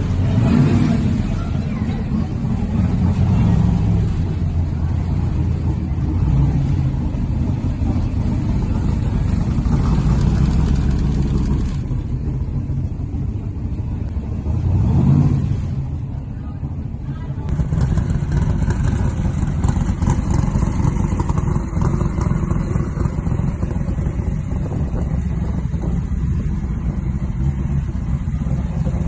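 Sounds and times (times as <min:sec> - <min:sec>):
car engine revving loudly: 0:00.0 - 0:01.4, 0:14.4 - 0:15.9.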